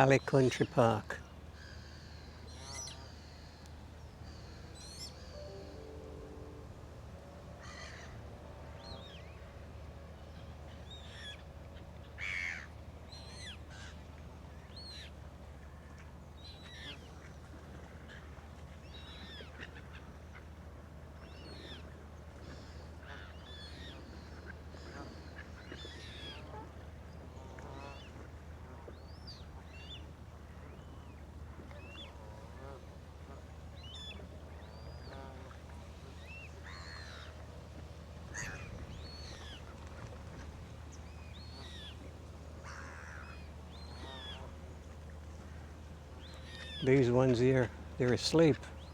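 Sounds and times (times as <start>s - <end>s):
ducks and geese calling: 38.3s - 40.2s, 42.6s - 44.5s.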